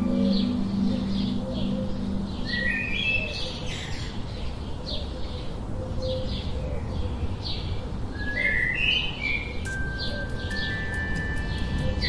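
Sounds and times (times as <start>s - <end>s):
birds chirping: 0.0s - 12.0s
whistled bird notes: 8.2s - 12.0s.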